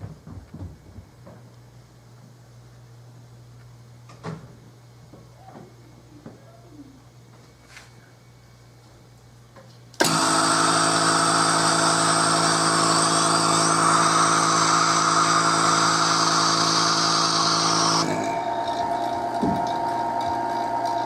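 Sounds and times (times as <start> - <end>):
router spindle running: 10.0 - 21.0.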